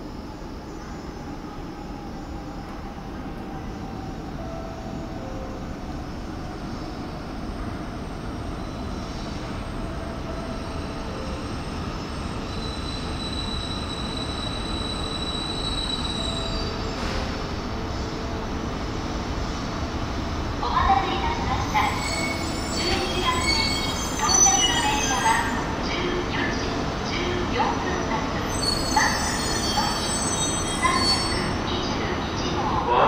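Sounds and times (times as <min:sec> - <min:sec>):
train rolling into station: 0:00.0 - 0:33.0
high brake squeal: 0:12.2 - 0:17.3, 0:21.8 - 0:25.6, 0:28.4 - 0:31.6.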